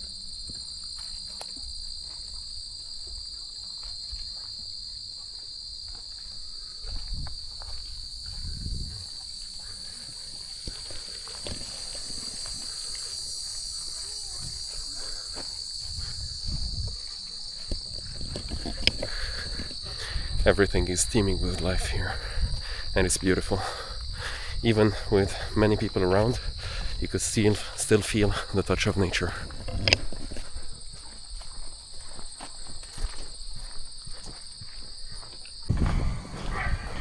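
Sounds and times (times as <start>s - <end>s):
insects trilling: 0.0s - 37.0s
low thumps: 35.7s - 37.0s.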